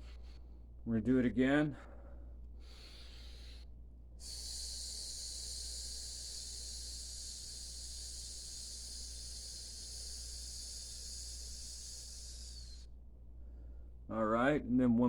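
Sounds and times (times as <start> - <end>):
short breath: 0.0 - 0.7, 1.8 - 14.0
man hissing through teeth: 2.6 - 3.6, 4.2 - 12.9.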